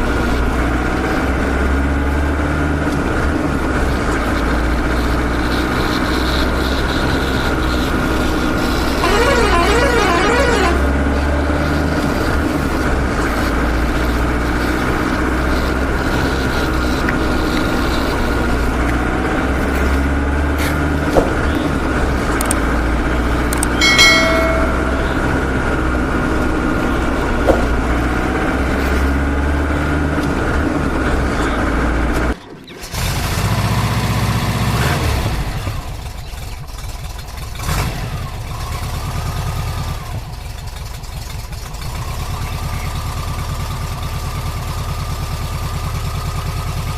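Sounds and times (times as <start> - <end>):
vehicle engine drone: 0.0 - 46.9
horn-like tone: 9.0 - 11.4, 23.6 - 25.8.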